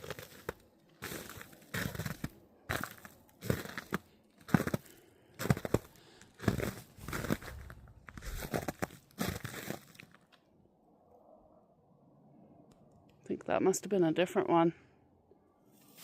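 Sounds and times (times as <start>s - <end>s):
footsteps crunching in snow: 0.0s - 10.2s, 15.8s - 16.0s.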